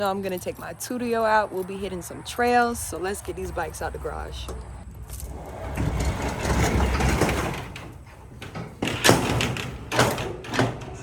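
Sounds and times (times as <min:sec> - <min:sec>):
garage door rumbling open: 0:05.2 - 0:11.0.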